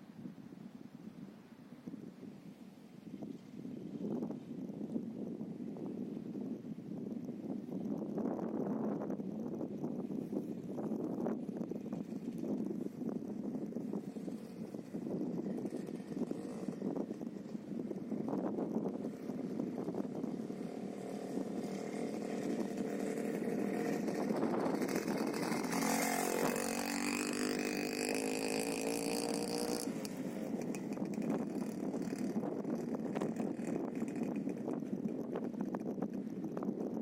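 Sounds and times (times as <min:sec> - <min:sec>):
motorcycle two-stroke engine running: 0:10.9 - 0:37.0.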